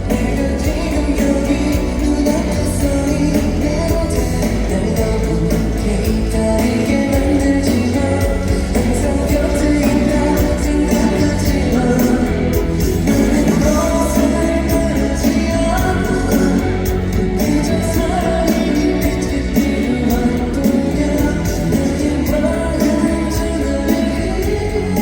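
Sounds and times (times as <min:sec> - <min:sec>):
man singing lead vocal: 0:00.0 - 0:25.0
pop-rock band playing: 0:00.0 - 0:25.0
steady drum beat: 0:00.0 - 0:25.0.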